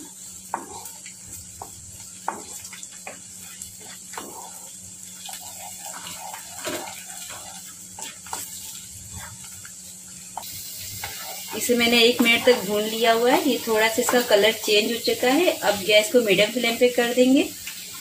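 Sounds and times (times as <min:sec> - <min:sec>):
food sizzling in hot oil: 0:00.0 - 0:18.0
wooden spatula scraping pan: 0:00.5 - 0:01.0, 0:01.6 - 0:09.6.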